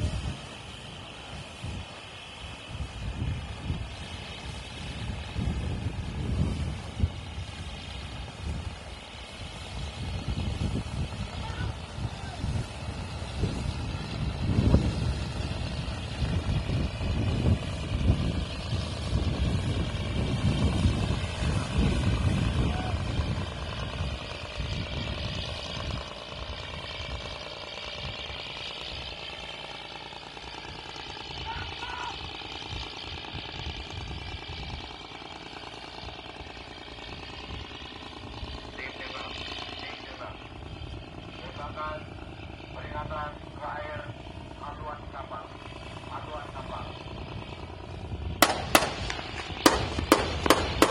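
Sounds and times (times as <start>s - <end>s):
wind buffeting microphone: 0.0s - 29.6s, 30.6s - 38.8s, 39.6s - 50.9s
water rumble: 0.0s - 31.3s, 43.4s - 50.9s
boat engine: 0.0s - 50.9s.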